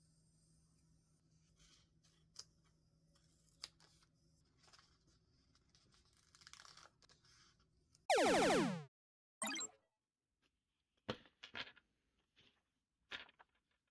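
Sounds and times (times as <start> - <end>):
loud tone sliding down: 8.1 - 8.8.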